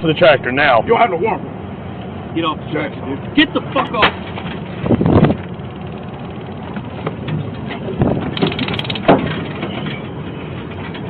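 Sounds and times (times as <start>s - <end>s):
tractor engine running: 4.2s - 9.8s.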